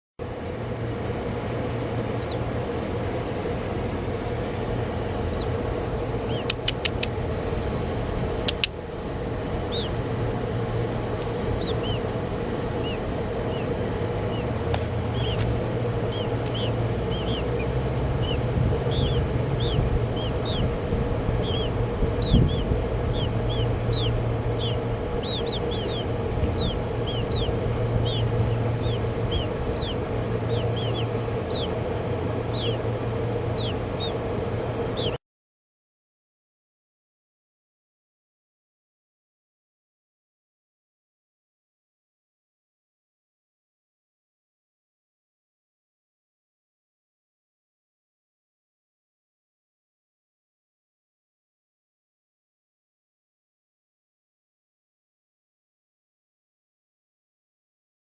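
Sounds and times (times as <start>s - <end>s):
steady mechanical hum: 0.2s - 35.2s
baby birds cheeping: 1.6s - 35.2s
sharp clicks: 6.4s - 7.2s, 8.4s - 8.8s.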